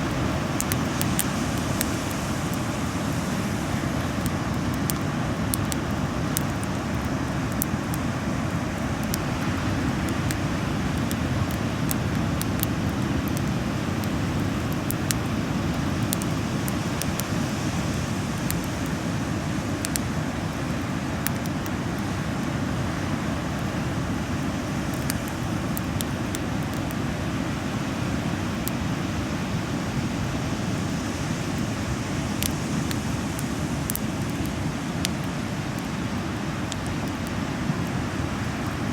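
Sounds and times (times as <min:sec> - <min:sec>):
bonfire crackling and popping: 0:00.0 - 0:38.9
low fire rumble: 0:00.0 - 0:38.9.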